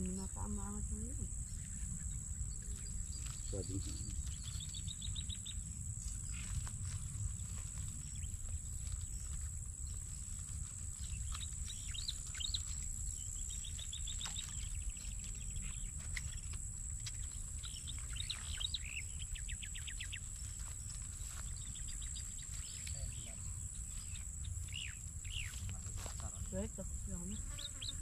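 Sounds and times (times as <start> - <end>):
small birds chirping: 0.0 - 28.0
high-pitched insect buzz: 8.0 - 28.0.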